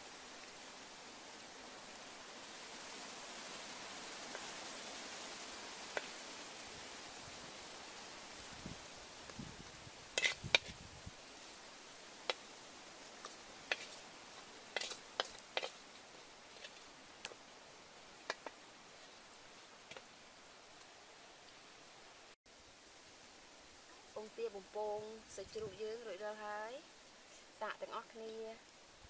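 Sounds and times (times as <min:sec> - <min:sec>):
steady hiss: 0:00.0 - 0:29.0
spatula scraping a wok: 0:10.1 - 0:10.8, 0:13.2 - 0:16.9.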